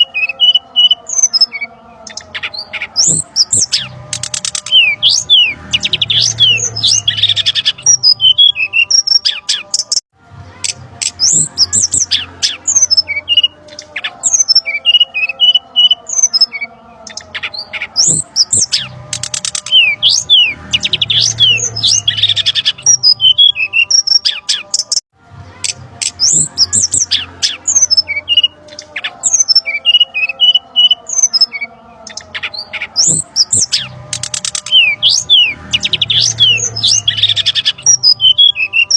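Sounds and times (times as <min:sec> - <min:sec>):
bird chirps and whistles: 0:26.0 - 0:38.9.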